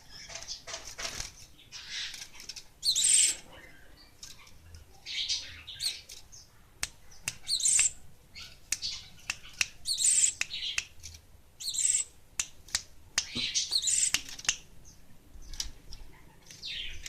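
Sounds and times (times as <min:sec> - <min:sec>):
bird chirping in high bursts: 0:02.8 - 0:03.3, 0:07.4 - 0:10.8, 0:11.6 - 0:12.2, 0:13.3 - 0:14.2.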